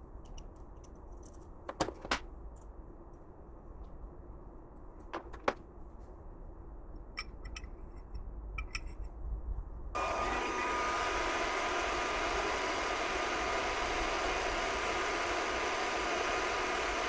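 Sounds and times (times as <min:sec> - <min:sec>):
machine running loudly: 0:10.0 - 0:17.0.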